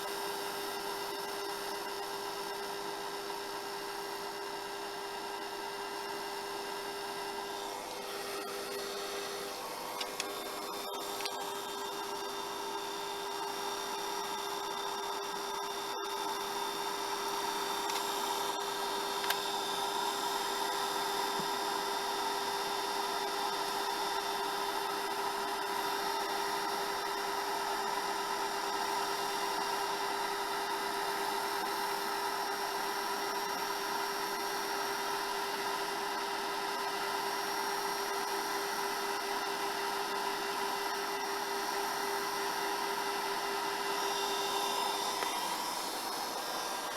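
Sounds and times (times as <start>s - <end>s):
hair dryer running: 5.6s - 13.6s, 16.8s - 30.0s, 38.6s - 46.9s.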